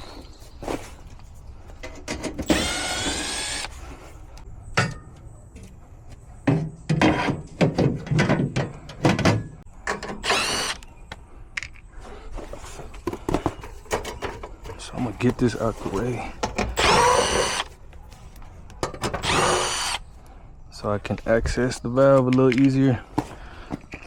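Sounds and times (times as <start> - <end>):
clanks and rattles of handling: 1.0 - 2.5, 6.4 - 10.2, 11.6 - 16.8, 22.0 - 24.0
power drill whirring: 2.4 - 3.8, 10.2 - 10.9, 16.7 - 17.7, 19.2 - 20.0.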